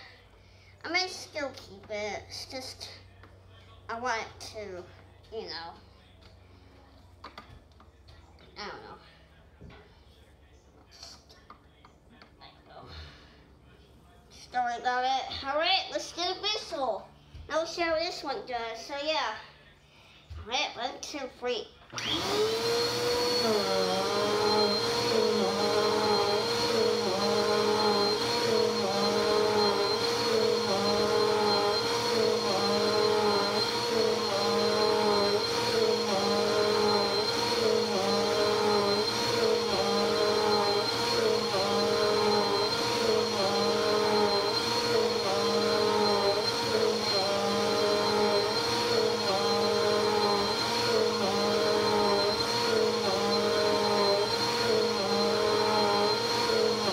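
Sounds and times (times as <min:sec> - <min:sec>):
vacuum cleaner running: 0:21.9 - 0:56.9.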